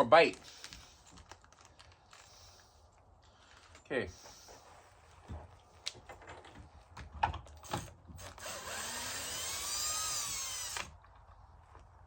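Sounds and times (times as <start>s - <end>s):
power drill driving a screw: 7.6s - 11.0s.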